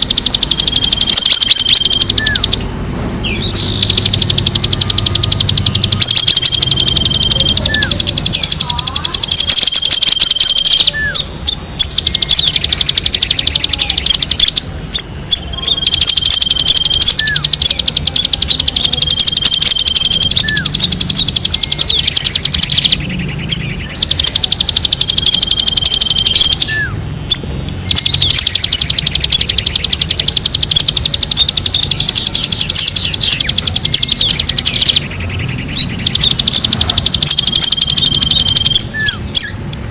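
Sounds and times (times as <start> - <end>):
short rising chirps: 0.0 - 11.2
high whistled bird notes: 0.0 - 39.6
songbird chattering trill: 0.0 - 39.8.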